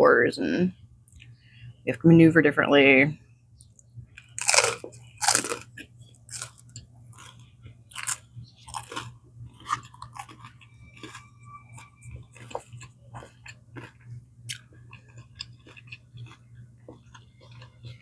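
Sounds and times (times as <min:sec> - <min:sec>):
close-up chewing: 0:03.6 - 0:18.0
crunchy bites into bread: 0:04.2 - 0:06.6
clicking mouth sounds: 0:14.5 - 0:14.7.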